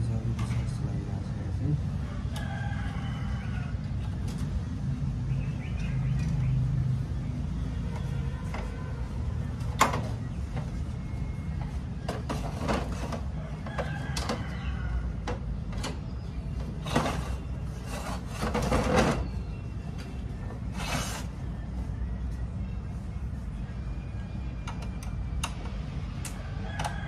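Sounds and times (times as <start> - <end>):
rustling scrape: 16.8 - 19.2, 20.7 - 21.3
clicks and taps of parts: 24.6 - 27.0.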